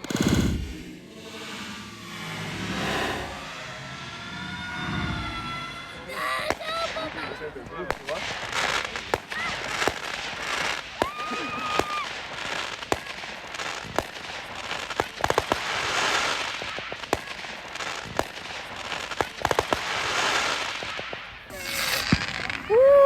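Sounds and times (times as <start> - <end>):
fireworks bangs and pops: 0.0 - 1.5, 6.1 - 23.0
fireworks crackling: 0.0 - 23.0.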